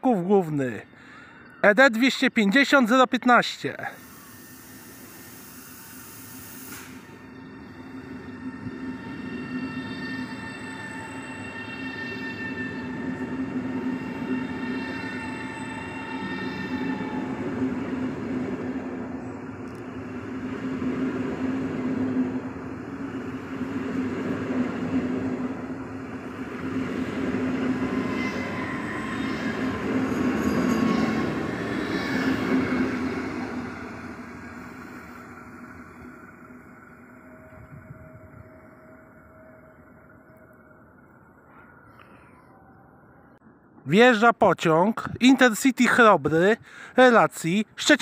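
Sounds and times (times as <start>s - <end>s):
electric train hum: 3.4s - 43.8s
wheel squeal: 6.6s - 17.4s, 27.7s - 33.3s.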